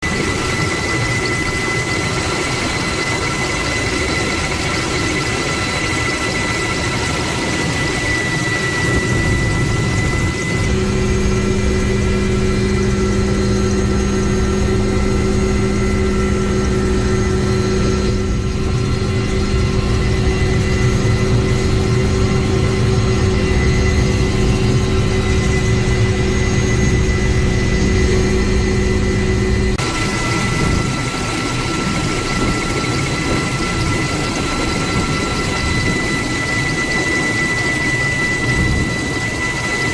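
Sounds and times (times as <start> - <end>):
turbine engine whine: 0.0 - 39.9
steady low hum: 8.6 - 36.5.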